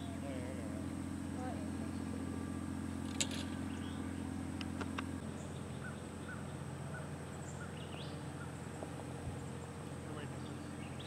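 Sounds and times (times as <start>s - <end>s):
low hum: 0.0s - 11.0s
faint bird chirps: 3.6s - 4.3s.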